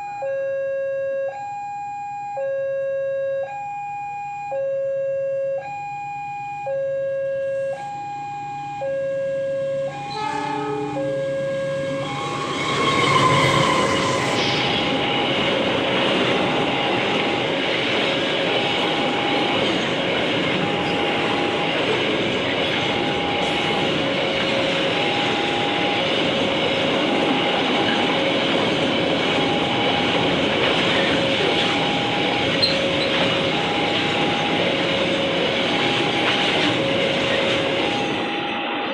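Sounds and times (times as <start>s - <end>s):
level crossing alarm tones: 0.0s - 38.9s
train passing: 7.5s - 38.9s
train horn blast: 9.8s - 15.2s.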